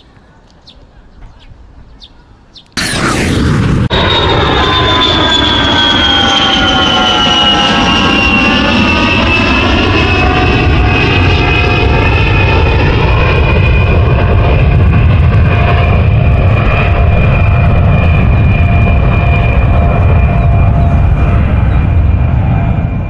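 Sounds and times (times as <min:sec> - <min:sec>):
aircraft-like engine drone: 0:00.0 - 0:23.0
heavy low rumble: 0:02.8 - 0:07.2.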